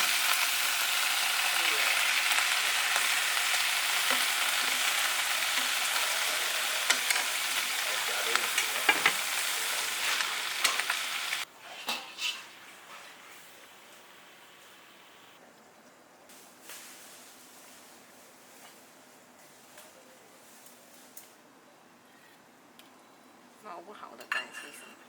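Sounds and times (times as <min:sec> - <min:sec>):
food sizzling in a pan: 0:00.0 - 0:15.3.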